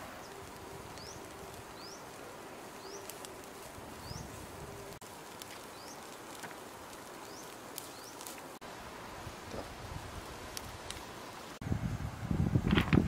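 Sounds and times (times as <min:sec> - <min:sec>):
steady background hiss: 0:00.0 - 0:13.0
bird chirping: 0:00.2 - 0:03.2, 0:03.9 - 0:04.4.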